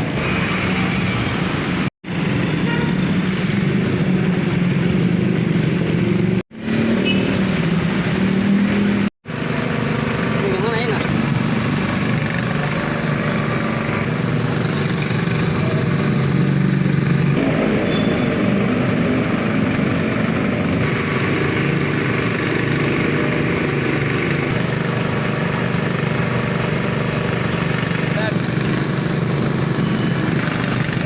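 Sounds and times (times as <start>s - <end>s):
small engine running: 9.3s - 31.0s.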